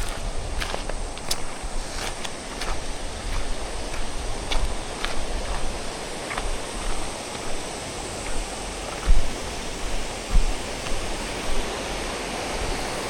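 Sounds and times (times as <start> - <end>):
short low thumps: 0.0 - 11.7
mountain stream rushing: 0.0 - 13.0.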